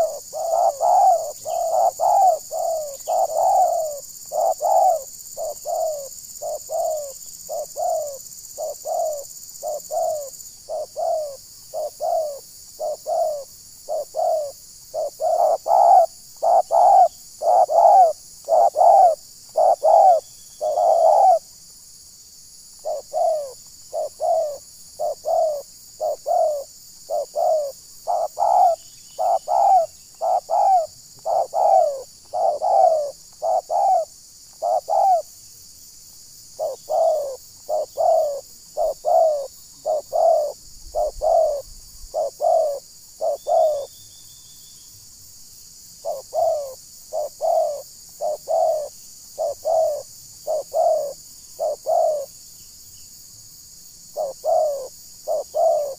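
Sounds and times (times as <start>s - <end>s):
dove cooing: 0.0s - 21.5s, 22.8s - 35.3s, 36.6s - 43.9s, 46.0s - 52.3s, 54.2s - 55.9s.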